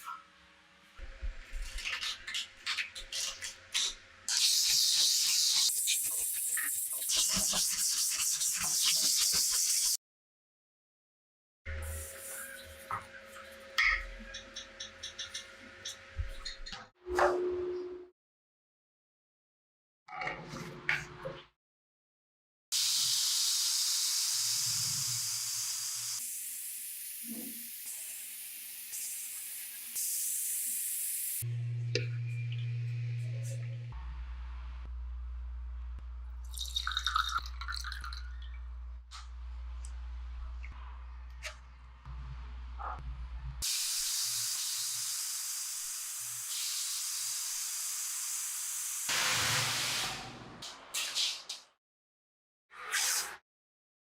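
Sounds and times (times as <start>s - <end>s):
steady low hum: 31.5s - 36.5s.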